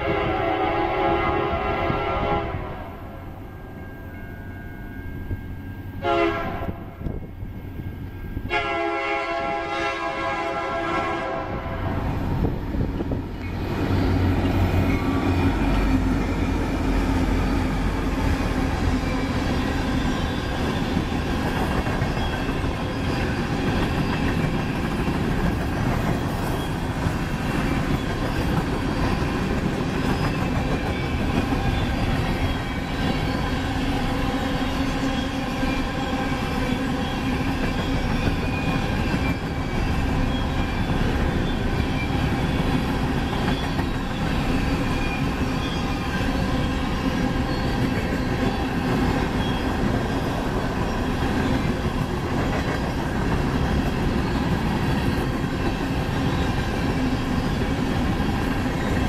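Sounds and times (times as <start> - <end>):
locomotive horn blasts: 0.0 - 3.2, 6.0 - 7.0, 8.4 - 12.0
locomotives rumbling past: 9.5 - 59.0
train wheels clattering on rail: 12.0 - 59.0.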